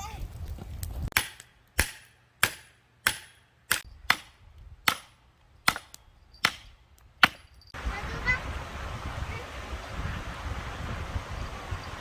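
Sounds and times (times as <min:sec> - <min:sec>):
hatchet chopping wood: 0:01.1 - 0:07.6.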